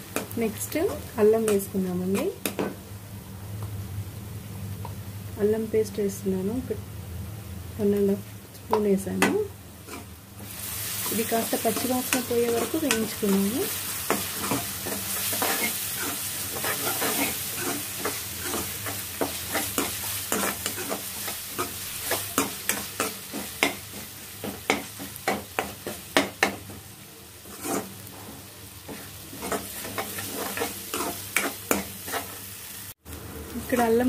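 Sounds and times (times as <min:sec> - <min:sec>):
onions sizzling in hot oil: 0:00.0 - 0:06.8, 0:07.7 - 0:34.0
metal spatula scraping a pan: 0:09.9 - 0:10.1, 0:11.0 - 0:26.6, 0:27.4 - 0:32.4.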